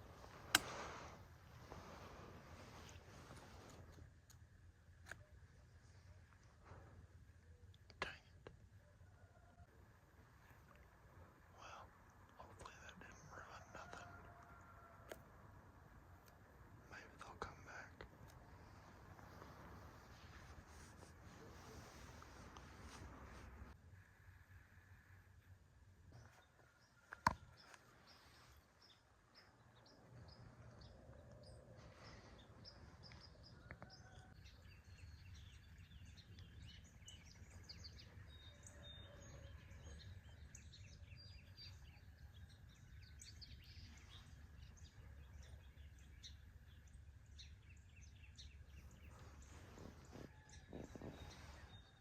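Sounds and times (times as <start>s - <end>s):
small birds chirping: 10.3s - 15.0s, 15.6s - 23.8s, 26.1s - 52.0s.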